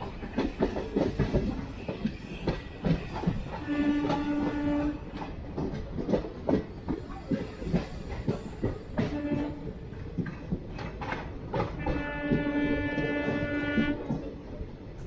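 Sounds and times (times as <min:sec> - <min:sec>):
train wheels clickety-clack: 0:00.0 - 0:15.0
train horn blast: 0:03.6 - 0:05.1, 0:09.0 - 0:09.7, 0:11.8 - 0:14.2.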